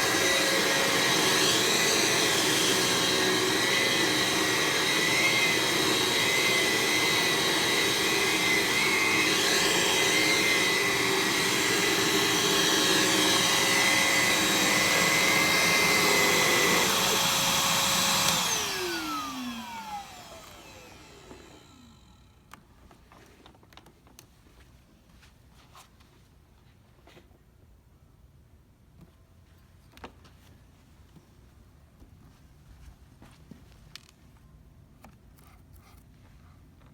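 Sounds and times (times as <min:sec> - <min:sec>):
vacuum cleaner running: 0:00.0 - 0:22.4.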